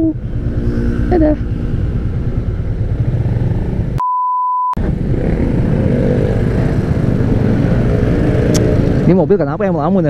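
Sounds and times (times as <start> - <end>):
motorcycle engine running: 0.0 - 4.0
road noise: 0.0 - 4.0, 4.8 - 10.0
steady bleep tone: 4.0 - 4.8.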